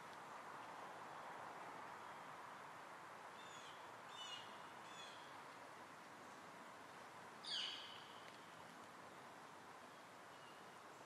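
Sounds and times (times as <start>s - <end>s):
small birds chirping: 7.4s - 8.7s.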